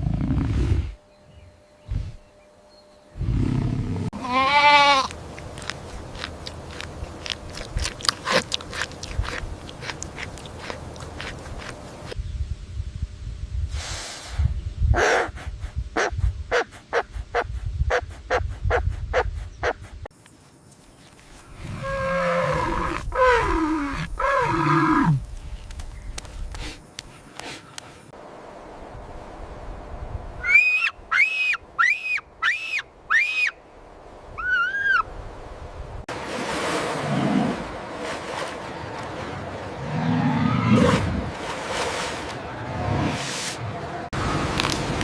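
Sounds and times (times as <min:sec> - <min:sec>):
steady low rumble: 0:28.1 - 0:30.4
animal calling: 0:30.4 - 0:33.6, 0:34.4 - 0:35.1.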